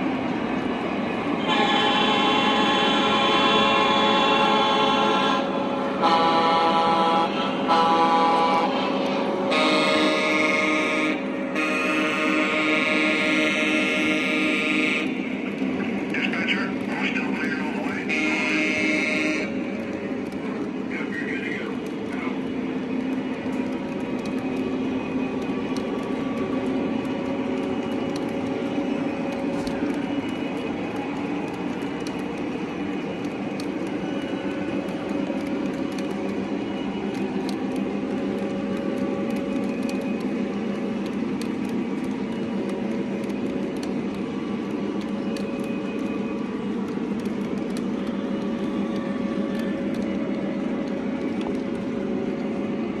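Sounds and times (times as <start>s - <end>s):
train running on track: 0.0s - 53.0s
faint clicks: 19.7s - 24.7s, 25.4s - 28.6s, 29.3s - 52.6s.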